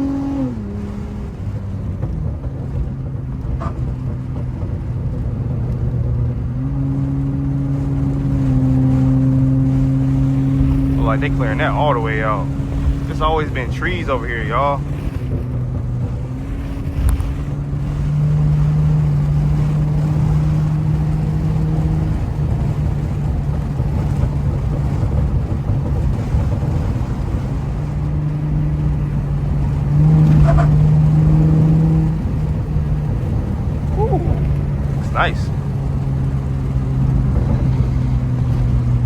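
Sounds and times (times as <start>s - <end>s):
car engine drone: 0.0s - 39.0s
road rumble: 0.0s - 39.0s.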